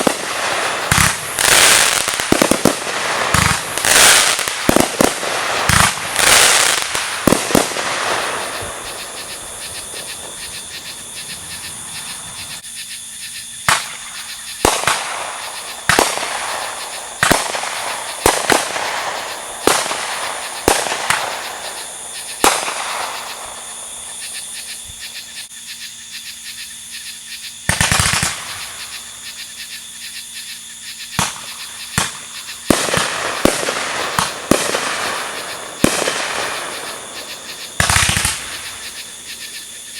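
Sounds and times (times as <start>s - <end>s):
fireworks bangs echoing: 0.0s - 10.5s, 13.7s - 23.6s, 27.7s - 28.7s, 31.2s - 39.2s
fireworks crackling volleys: 0.0s - 10.5s, 13.7s - 23.6s, 27.7s - 28.8s, 31.2s - 39.2s.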